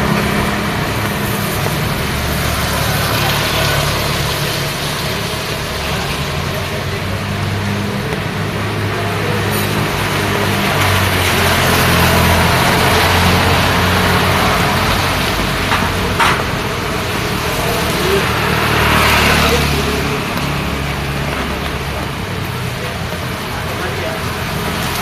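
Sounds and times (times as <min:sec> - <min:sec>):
rain and wet tyres hiss: 0:00.0 - 0:25.0
vehicle engines running: 0:00.0 - 0:25.0
vehicle passing: 0:00.0 - 0:25.0.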